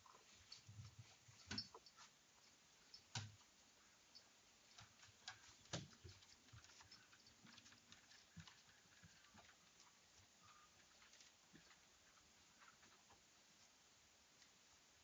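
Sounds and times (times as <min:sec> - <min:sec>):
soft ticks: 0:00.4 - 0:03.5.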